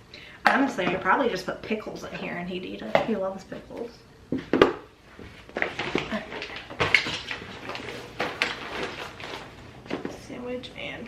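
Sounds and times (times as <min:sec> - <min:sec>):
bags rustling: 0:05.2 - 0:10.0
food containers clicking: 0:05.5 - 0:10.1.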